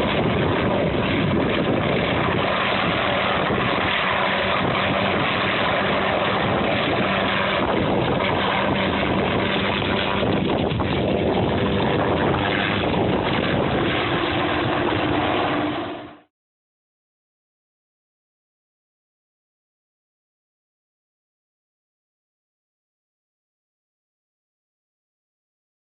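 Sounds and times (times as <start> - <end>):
wind on microphone: 0.0 - 15.8
helicopter engine and rotor: 0.0 - 16.3.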